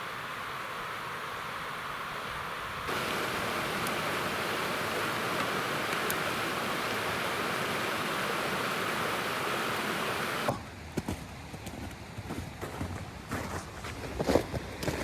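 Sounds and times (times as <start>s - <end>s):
river rapids rushing: 2.9s - 10.6s.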